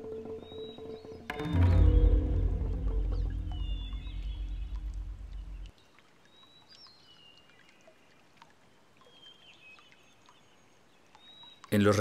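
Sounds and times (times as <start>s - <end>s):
background music: 0.0s - 5.7s
forest ambience: 0.0s - 12.0s
high whistled bird calls: 0.2s - 5.7s.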